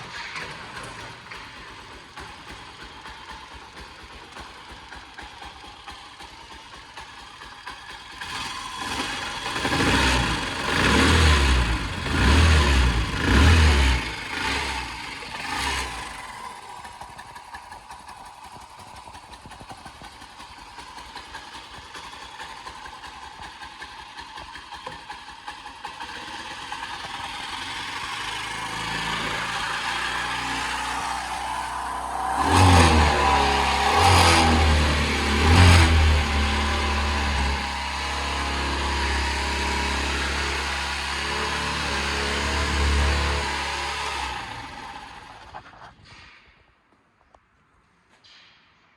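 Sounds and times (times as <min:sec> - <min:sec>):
motorcycle engine idling and blipped: 0:00.0 - 0:48.7.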